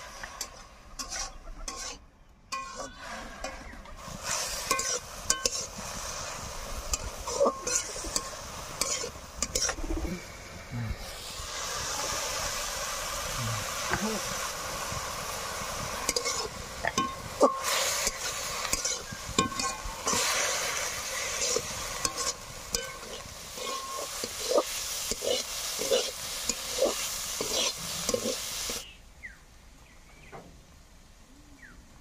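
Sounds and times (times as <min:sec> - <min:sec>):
spatula scraping a wok: 0:00.0 - 0:09.9, 0:15.8 - 0:28.8
greens sizzling in a wok: 0:00.0 - 0:29.0.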